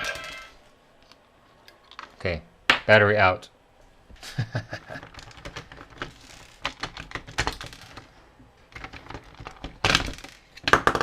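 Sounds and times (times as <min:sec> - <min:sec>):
plastic parts clicking and tapping: 0:05.0 - 0:08.1, 0:08.7 - 0:11.0
plastic parts clattering: 0:05.0 - 0:11.0.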